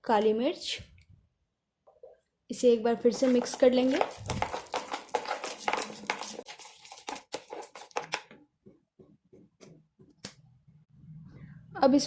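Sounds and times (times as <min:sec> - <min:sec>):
spoon mashing butter in bowl: 0:03.1 - 0:08.4.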